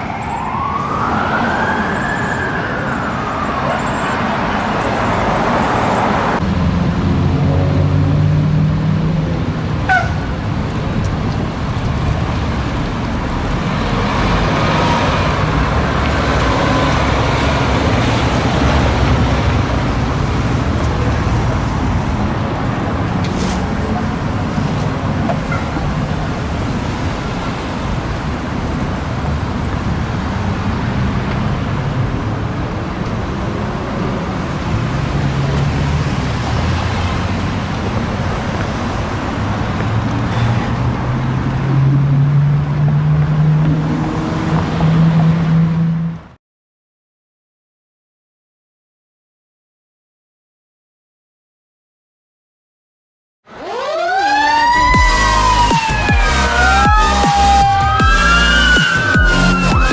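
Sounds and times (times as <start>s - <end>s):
emergency siren wail: 0.0s - 10.5s, 53.5s - 59.9s
heavy road traffic: 0.0s - 46.4s, 53.4s - 59.9s.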